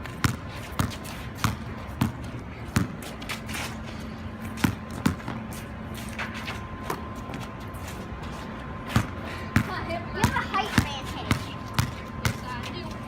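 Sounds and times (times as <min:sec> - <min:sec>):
basketball bouncing on wet court: 0:00.1 - 0:03.0, 0:04.6 - 0:05.4, 0:08.9 - 0:12.5.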